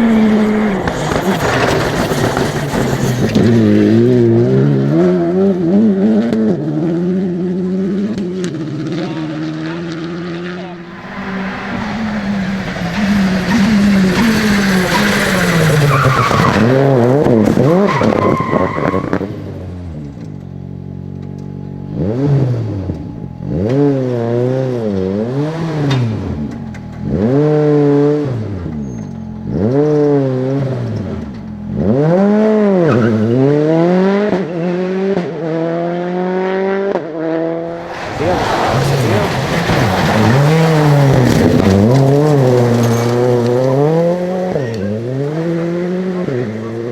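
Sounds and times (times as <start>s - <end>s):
rally car engines revving: 0.0s - 46.9s
tyres squealing: 10.6s - 19.3s, 37.8s - 46.9s.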